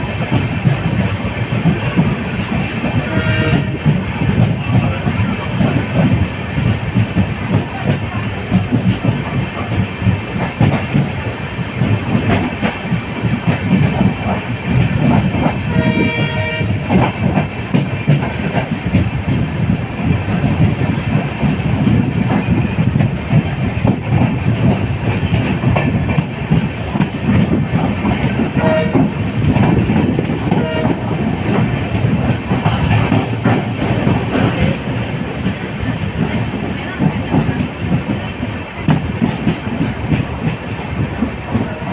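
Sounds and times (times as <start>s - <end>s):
train wheels clickety-clack: 0.0s - 41.9s
train horn: 2.8s - 4.5s, 15.7s - 17.1s, 28.4s - 29.2s, 30.4s - 31.6s.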